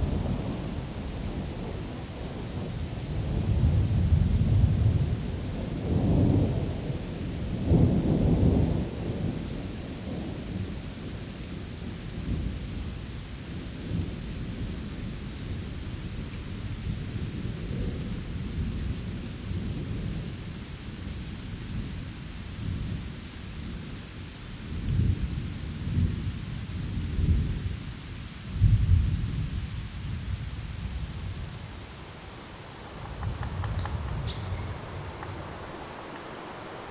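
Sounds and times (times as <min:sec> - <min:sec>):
rolling thunder: 0:00.0 - 0:10.8, 0:28.6 - 0:36.9
rain hiss: 0:00.0 - 0:36.9.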